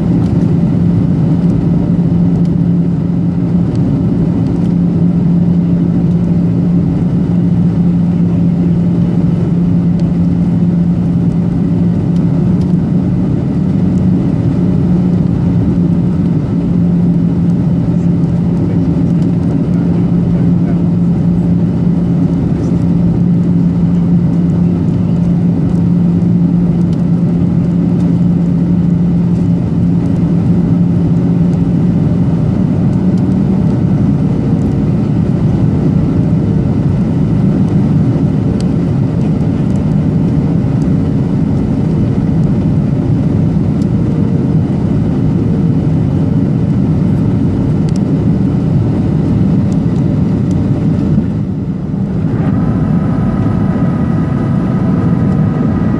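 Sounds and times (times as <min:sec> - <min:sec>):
jet engines droning: 0:00.0 - 0:55.9
low steady hum: 0:00.0 - 0:55.9
airflow rushing: 0:49.9 - 0:55.9.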